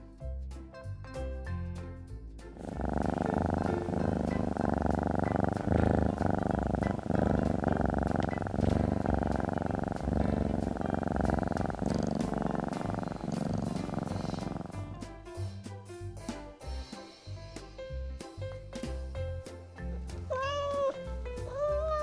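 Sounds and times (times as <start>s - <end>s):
cat purring: 2.5s - 15.1s.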